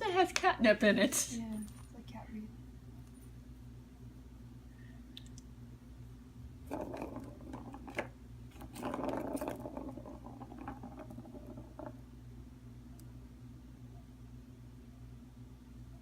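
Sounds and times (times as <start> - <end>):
toy ball scuffing and rattling: 6.7 - 12.0.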